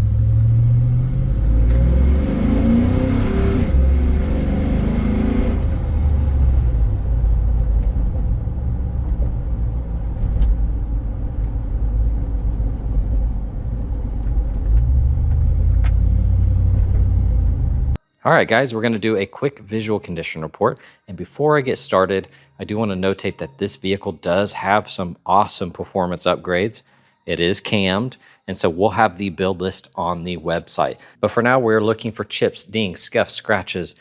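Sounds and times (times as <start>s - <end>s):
car engine rumbling inside cabin: 0.0s - 18.0s.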